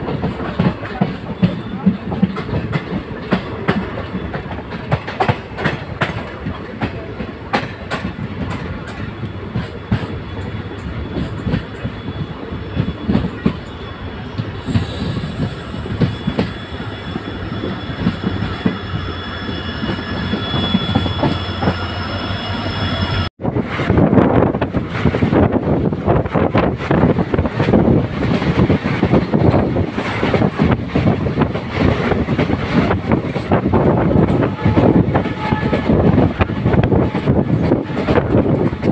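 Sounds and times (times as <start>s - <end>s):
train wheels rumbling: 0.0s - 38.9s
wheels squealing on rails: 0.4s - 24.0s.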